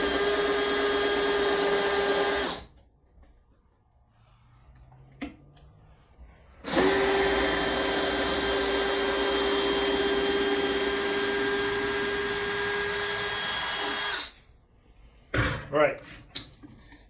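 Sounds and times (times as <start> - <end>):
electric power tool motor running: 0.0 - 2.7, 6.6 - 14.4.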